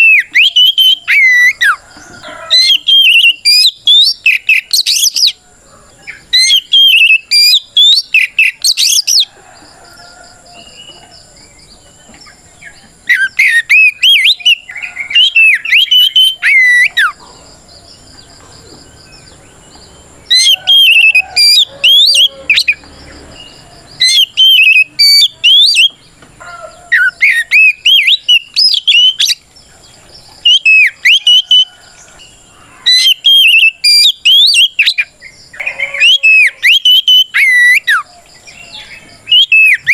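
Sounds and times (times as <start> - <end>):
bird singing whistled phrases: 0.0 - 1.8, 2.5 - 5.4, 6.1 - 9.2, 13.0 - 17.2, 20.3 - 22.8, 24.0 - 26.0, 27.0 - 29.4, 30.4 - 31.7, 32.9 - 38.1, 38.7 - 39.9.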